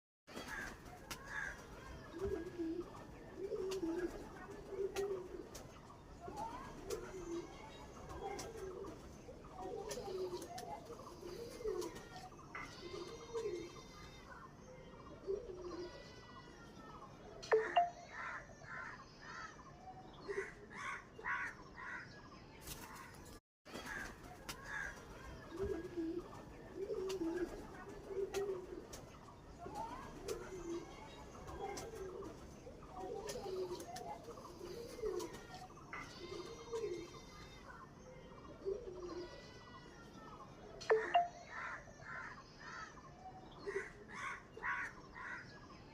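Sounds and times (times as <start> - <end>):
pigeons cooing: 0.4 - 5.7, 6.6 - 13.8, 15.2 - 16.0, 23.9 - 37.3, 38.5 - 39.4.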